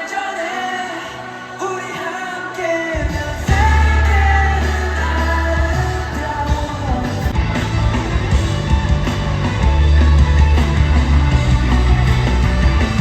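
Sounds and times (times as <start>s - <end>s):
person singing: 0.0s - 7.4s
live rock band music: 3.0s - 13.0s.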